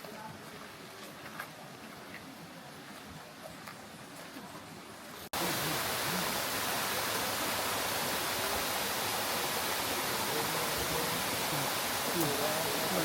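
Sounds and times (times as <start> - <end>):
waterfall rushing: 5.3 - 13.0.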